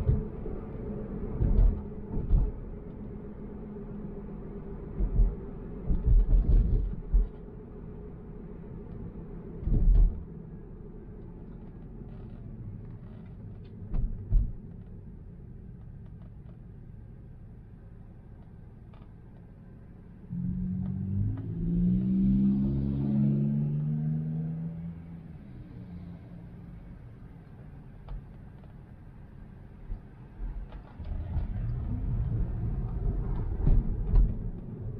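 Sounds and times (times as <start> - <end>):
car road rumble: 0.0 - 34.9
thumps over bumps: 33.2 - 34.7.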